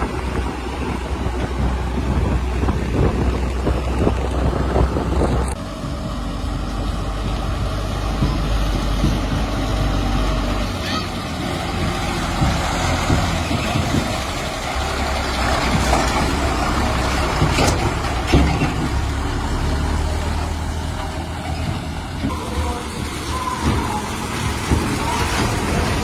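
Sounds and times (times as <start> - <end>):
heavy diesel engines running: 0.0 - 26.0.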